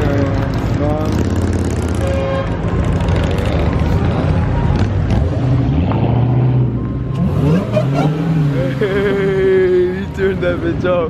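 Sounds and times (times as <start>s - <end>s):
car engine revving: 0.0s - 9.6s
car engines running loudly: 0.0s - 11.0s.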